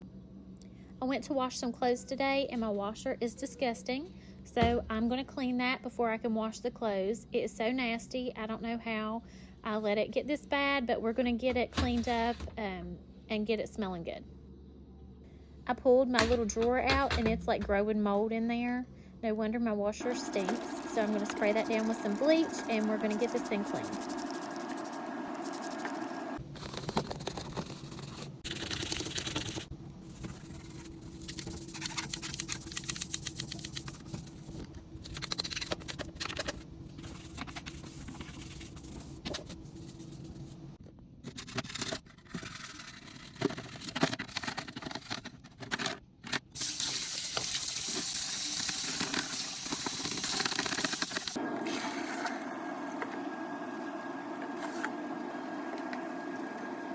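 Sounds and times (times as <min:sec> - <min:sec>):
scrubbing: 0:20.1 - 0:26.2.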